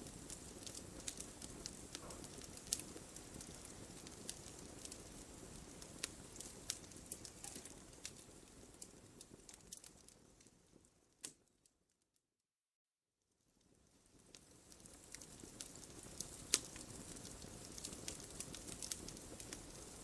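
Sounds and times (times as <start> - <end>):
fire flames rushing: 0.0 - 10.2, 14.2 - 20.0
logs crackling and popping: 0.0 - 11.5, 14.0 - 20.0.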